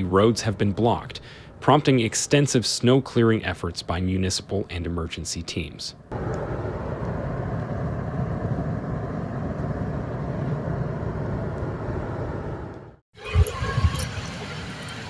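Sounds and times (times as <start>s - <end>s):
vehicle engine low rumble: 6.0s - 13.0s.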